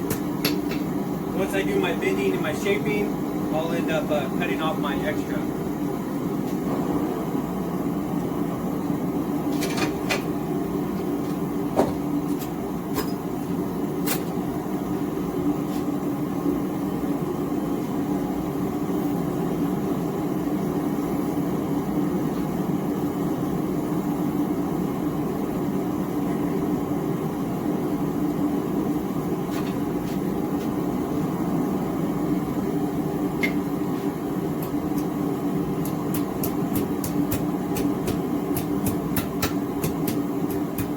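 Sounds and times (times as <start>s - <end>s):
gas forge burner rushing hum: 0.0s - 40.9s.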